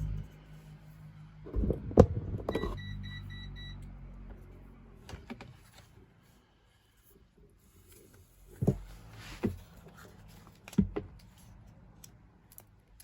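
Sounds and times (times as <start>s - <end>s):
short electronic beeps: 2.5s - 3.8s.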